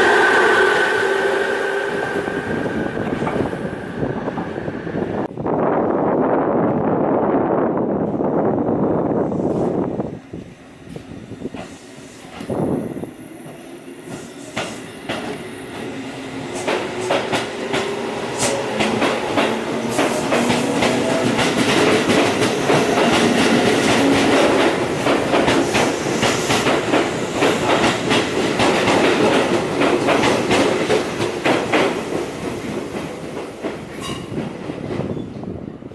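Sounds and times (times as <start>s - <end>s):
train wheels clicking over rail joints: 16.5s - 35.2s.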